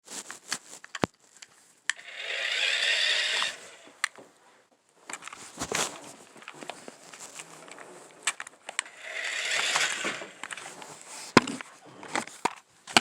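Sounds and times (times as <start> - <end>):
toy truck motor whirring: 1.9 - 4.1, 8.8 - 11.1.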